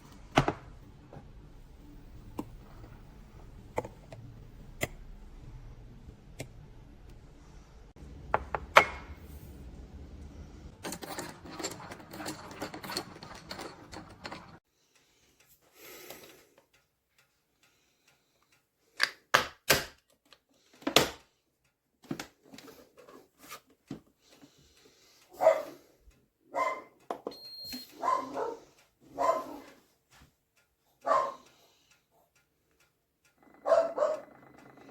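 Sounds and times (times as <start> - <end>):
dog barking: 25.3 - 25.8, 26.5 - 27.0, 27.9 - 29.7, 31.0 - 31.5, 33.4 - 34.5.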